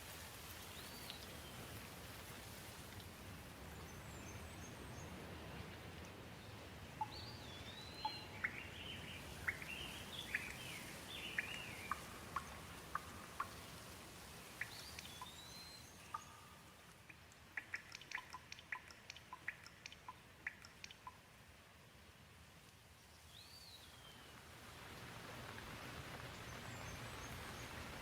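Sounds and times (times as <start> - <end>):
gentle rain hiss: 0.0 - 28.0
bird chirps: 7.0 - 13.8, 14.6 - 16.8, 17.6 - 21.2
sharp ticks: 16.1 - 21.2.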